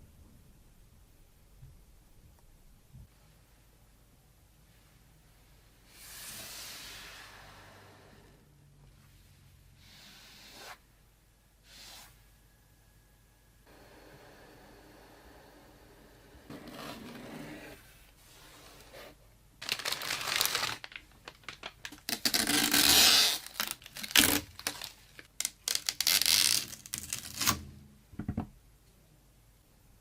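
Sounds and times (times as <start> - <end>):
packaging tearing and crinkling: 19.6 - 27.6.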